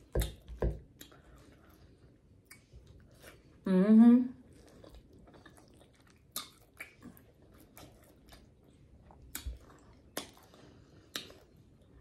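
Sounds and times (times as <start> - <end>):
wet chewing: 0.0 - 3.6, 4.4 - 12.0
lip smacks and clicks: 2.4 - 3.0, 6.0 - 8.5, 9.2 - 11.8.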